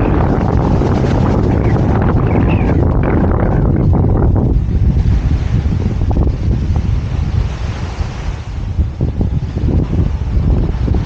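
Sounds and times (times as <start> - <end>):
surf washing onto beach: 0.0 - 11.0
wind buffeting microphone: 0.0 - 11.0.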